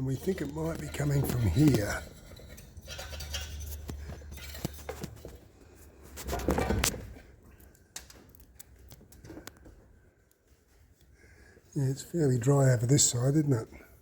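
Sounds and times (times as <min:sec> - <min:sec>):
tools and metal parts clicking: 0:00.0 - 0:05.5.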